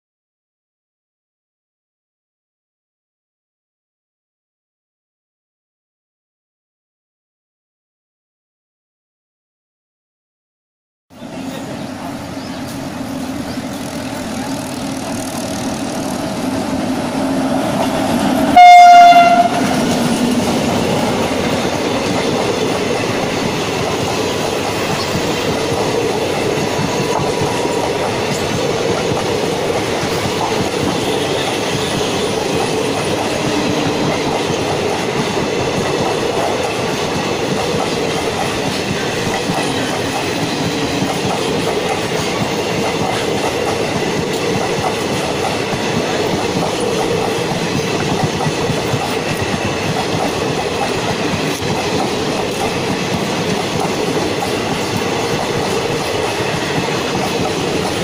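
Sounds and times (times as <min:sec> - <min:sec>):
electric locomotive humming: 0:11.1 - 0:58.0
train coaches rumbling past: 0:11.1 - 0:58.0
train horn blast: 0:18.4 - 0:19.9.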